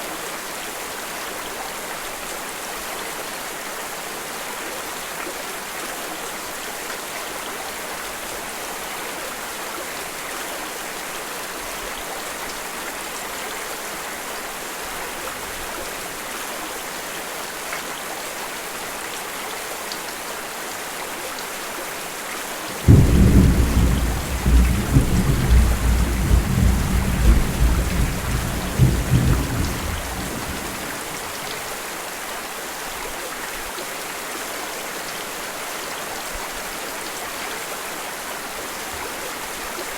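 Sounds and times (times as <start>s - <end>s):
steady rain: 0.0s - 39.9s
thunder clap and rumble: 22.8s - 31.5s.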